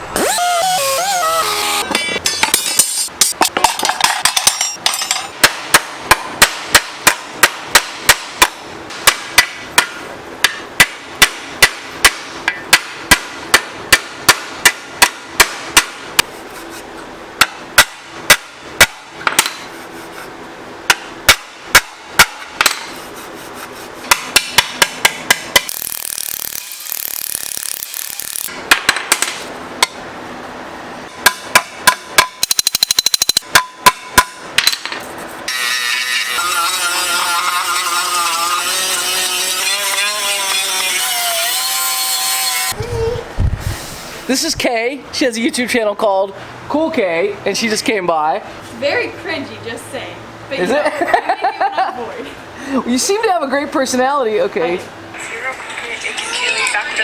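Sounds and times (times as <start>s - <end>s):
hammer striking: 1.8s - 16.3s, 17.4s - 19.7s, 20.9s - 23.0s, 24.0s - 30.0s, 31.1s - 36.3s.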